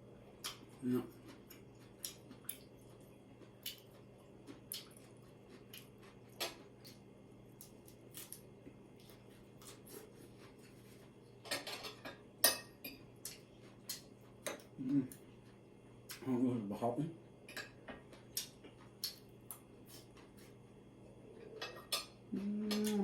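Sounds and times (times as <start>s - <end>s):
cutlery clinking on plate: 11.4s - 13.0s, 21.5s - 22.2s.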